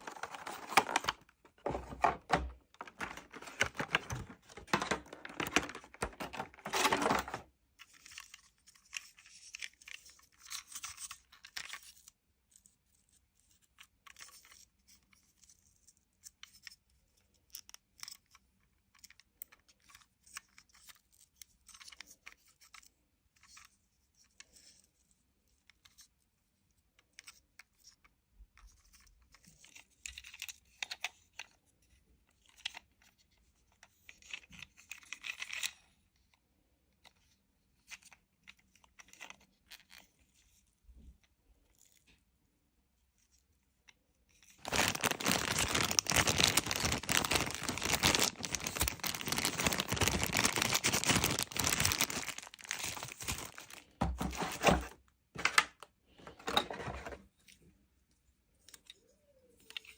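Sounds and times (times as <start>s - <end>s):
packaging tearing: 0.0s - 7.4s, 44.6s - 55.0s
packaging crinkling: 0.0s - 7.5s, 44.6s - 55.6s.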